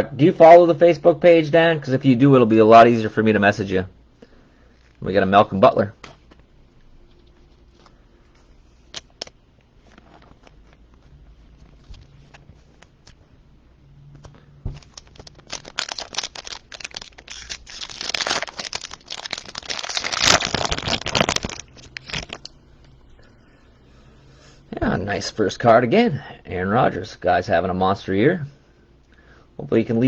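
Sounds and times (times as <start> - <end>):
foil wrapper tearing and crinkling: 14.8 - 22.5.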